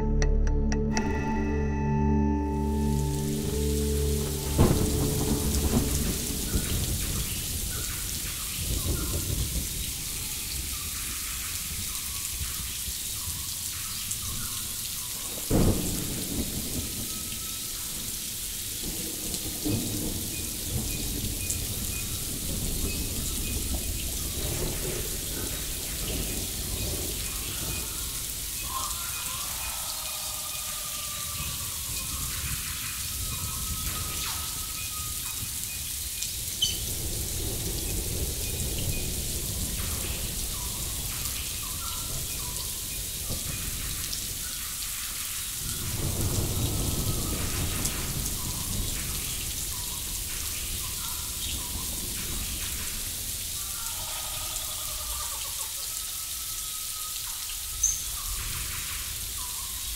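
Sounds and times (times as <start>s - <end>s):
low rumble: 0.0s - 7.6s
rain-like rushing noise: 2.3s - 59.9s.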